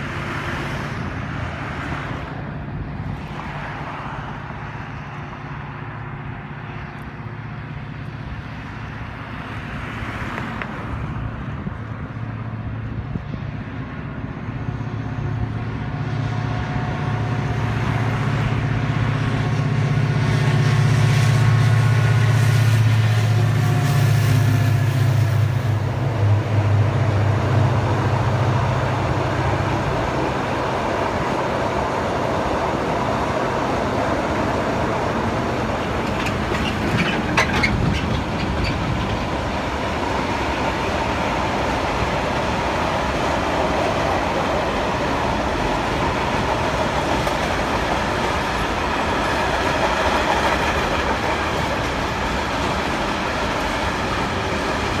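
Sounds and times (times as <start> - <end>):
diesel locomotive engine drone: 0.0 - 55.0
freight wagons rumbling on rails: 0.0 - 55.0
wheel clacks: 35.7 - 39.7.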